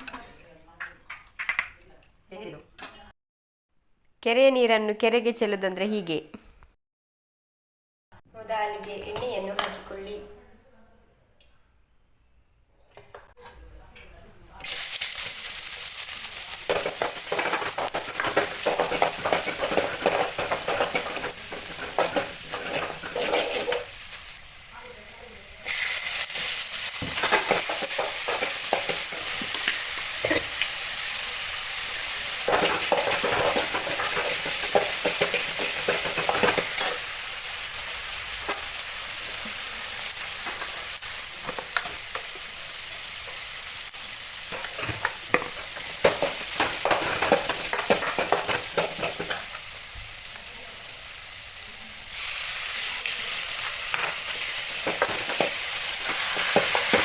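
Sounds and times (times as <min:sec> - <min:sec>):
food sizzling in hot oil: 0:14.6 - 0:57.0
spatula scraping a pan: 0:16.7 - 0:24.0.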